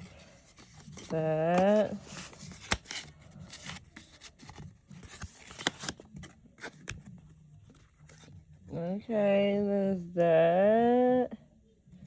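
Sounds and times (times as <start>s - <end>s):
packaging rustling: 0.0s - 8.3s.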